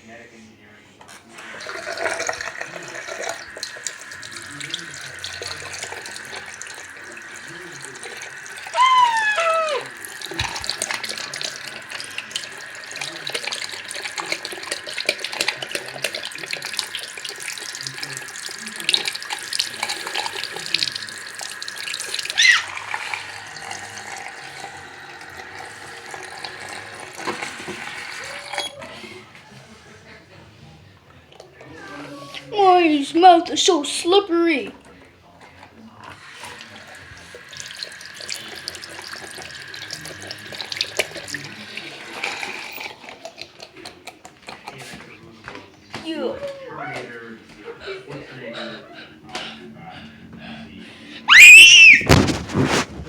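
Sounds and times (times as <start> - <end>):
tap water running into sink: 1.2 - 29.0, 35.7 - 45.0, 51.3 - 53.0
high squeal falling in pitch: 8.7 - 9.9, 51.3 - 52.2.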